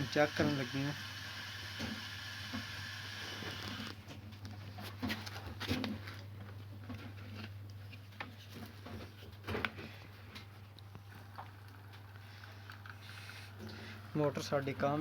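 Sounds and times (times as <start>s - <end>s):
pump motor humming: 0.0s - 4.0s.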